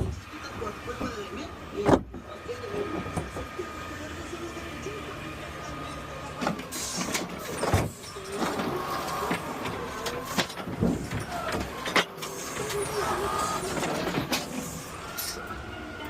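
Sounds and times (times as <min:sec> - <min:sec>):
garbage truck clanks and knocks: 0:00.0 - 0:03.6, 0:06.3 - 0:15.4
garbage truck mechanical noise: 0:00.0 - 0:16.0.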